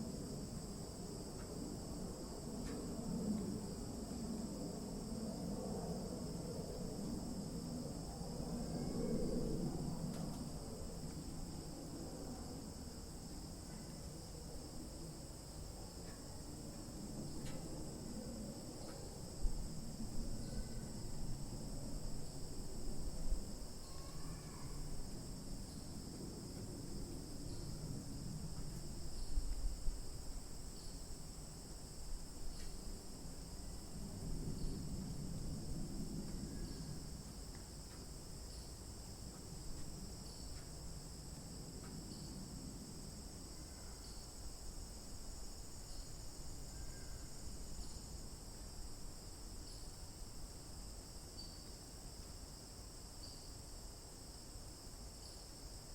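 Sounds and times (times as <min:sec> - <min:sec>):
insects trilling: 0:06.0 - 0:35.2, 0:36.1 - 0:55.9
faint chirps: 0:23.8 - 0:24.8.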